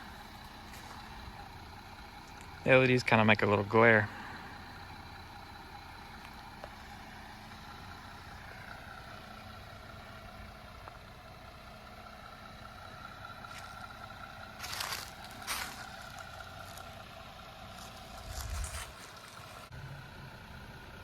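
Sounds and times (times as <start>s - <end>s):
car engine idling: 0.0s - 21.0s
brief scrape or rustle: 18.3s - 19.3s.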